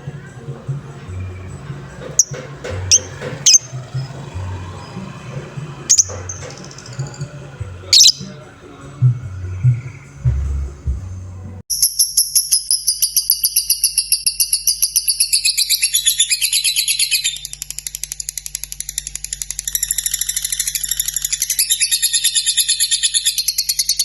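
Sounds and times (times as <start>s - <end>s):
lovebird chattering trill: 2.1s - 4.2s, 5.9s - 8.4s.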